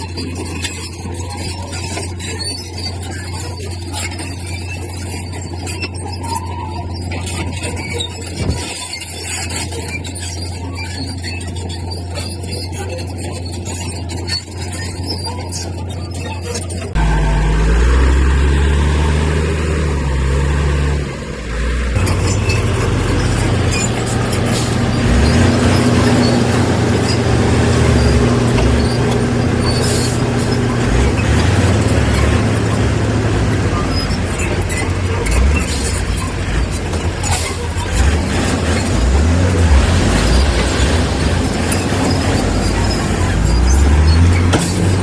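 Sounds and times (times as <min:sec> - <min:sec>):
diesel earthmoving machinery running: 0:00.0 - 0:45.0.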